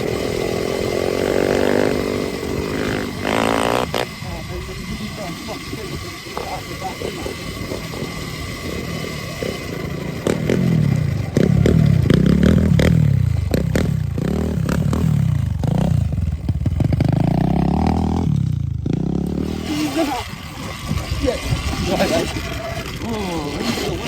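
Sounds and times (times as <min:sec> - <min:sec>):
electric dirt bike motor whining: 0:00.0 - 0:24.0
bike clattering over rough ground: 0:15.5 - 0:24.0.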